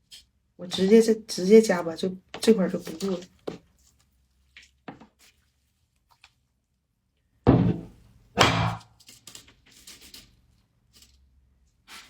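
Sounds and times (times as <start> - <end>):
heavy thunks: 7.5 - 8.8.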